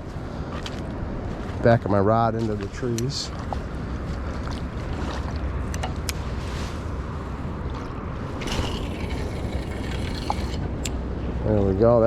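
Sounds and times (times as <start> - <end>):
wind rumble on microphone: 0.0 - 12.0
fishing line swishing out: 8.3 - 10.7.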